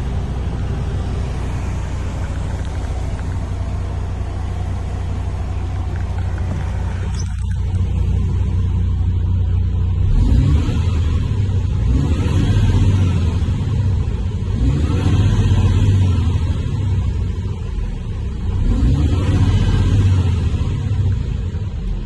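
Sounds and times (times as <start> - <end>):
truck diesel engine revving: 9.8 - 21.8.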